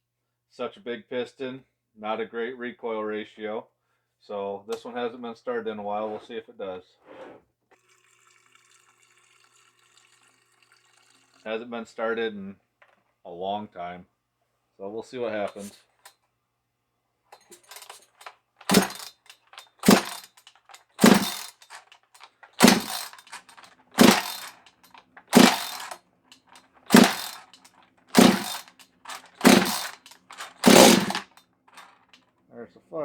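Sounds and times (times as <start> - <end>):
chainsaw recoil starter pulls: 17.4 - 32.2
chainsaw engine turning over: 17.6 - 32.2.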